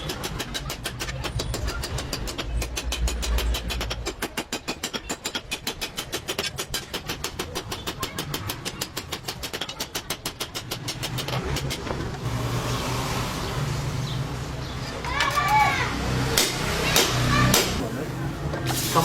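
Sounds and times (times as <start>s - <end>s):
small engine running: 10.2s - 17.5s.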